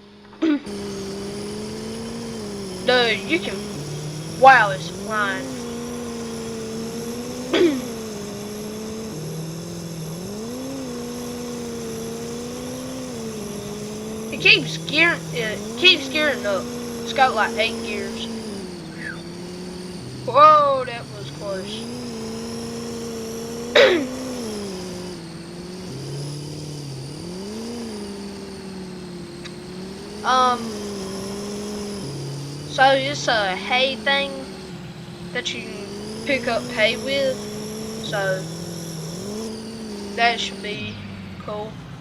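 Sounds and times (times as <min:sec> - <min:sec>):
truck engine accelerating through gears: 0:00.0 - 0:42.0.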